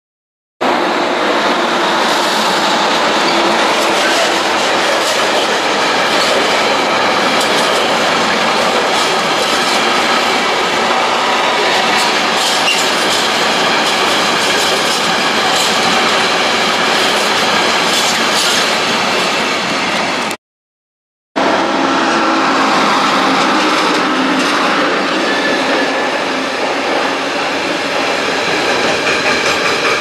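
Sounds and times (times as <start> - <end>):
train wheels on rails: 0.6 - 20.4, 21.4 - 30.0.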